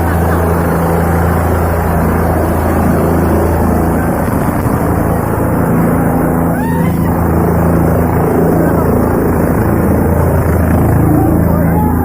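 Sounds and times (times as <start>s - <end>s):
helicopter rotor and turbine engine: 0.0s - 12.0s.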